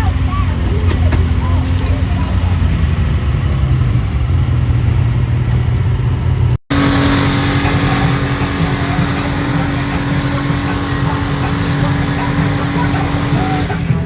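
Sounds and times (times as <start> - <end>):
machine droning: 0.0 - 14.0
utility vehicle engine running: 0.0 - 14.0
loud hiss: 6.7 - 14.0.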